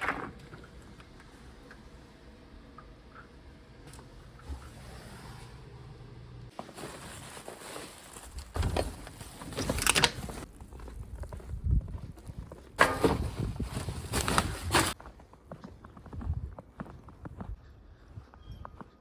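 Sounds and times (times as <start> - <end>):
footsteps crunching in snow: 6.5 - 9.6
wind gusts buffeting microphone: 10.9 - 14.6.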